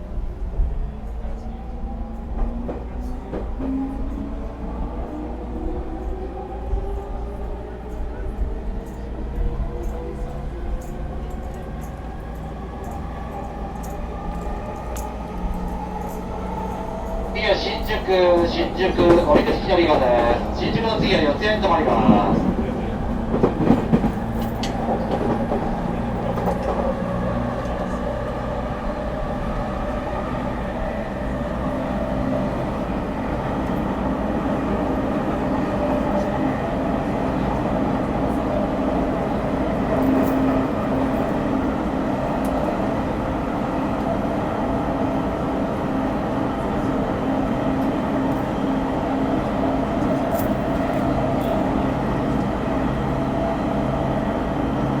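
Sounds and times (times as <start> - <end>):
electric train motors humming: 12.8 - 24.8.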